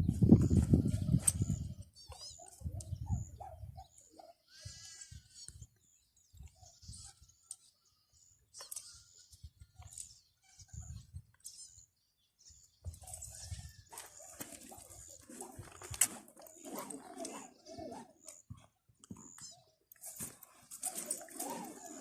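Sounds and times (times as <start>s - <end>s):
faint animal calls: 0.5s - 5.6s, 20.8s - 22.0s
bird chirps: 0.9s - 4.4s, 17.2s - 20.2s.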